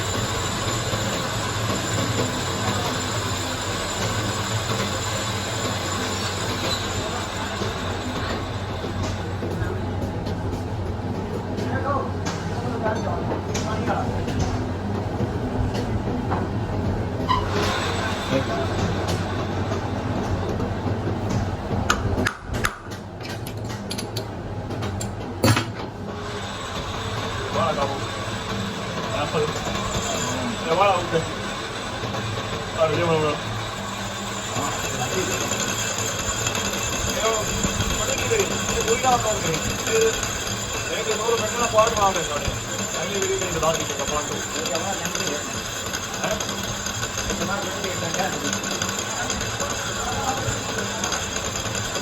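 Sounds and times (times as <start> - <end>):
workshop machinery running: 0.0 - 52.0
faint high squealing tones: 17.2 - 17.9.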